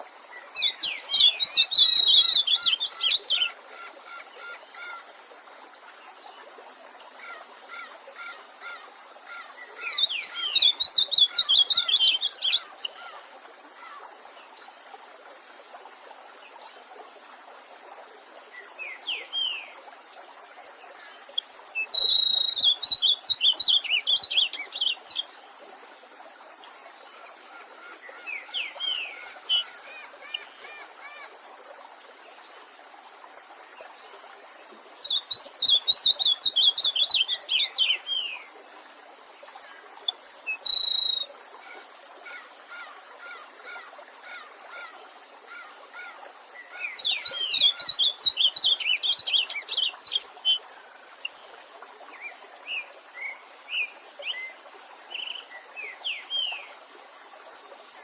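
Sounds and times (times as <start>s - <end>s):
songbird singing: 0.0s - 5.1s, 7.1s - 14.8s, 18.5s - 19.8s, 20.6s - 25.6s, 26.6s - 31.3s, 35.0s - 38.5s, 39.2s - 56.8s
soft bird calls: 0.0s - 5.2s, 7.1s - 14.8s, 26.8s - 31.3s
running stream water: 0.0s - 58.0s.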